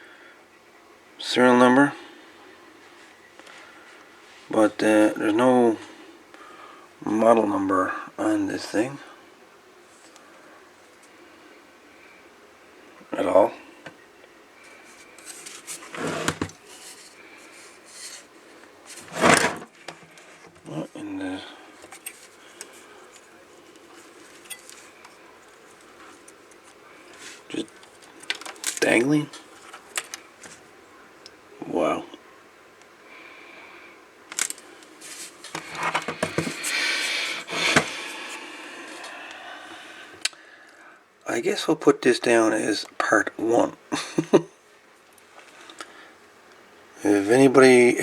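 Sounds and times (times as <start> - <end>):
rustling: 14.6 - 20.7, 34.3 - 39.2
radio rubbing and scraping: 14.7 - 20.6, 35.0 - 38.1.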